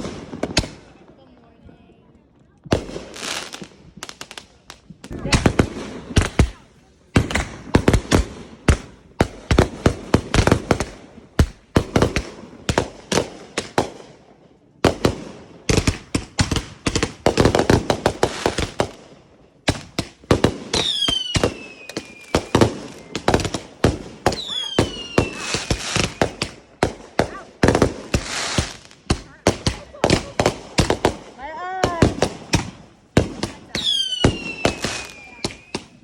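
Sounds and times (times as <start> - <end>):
fireworks bangs and crackles: 0.0 - 36.0
fireworks whistles falling in pitch: 20.7 - 23.6, 24.2 - 26.4, 33.8 - 36.0.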